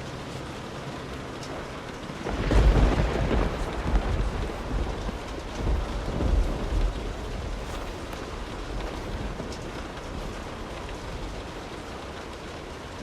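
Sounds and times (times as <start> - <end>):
steady rain: 0.0 - 13.0
thunder rumbling: 1.5 - 13.0.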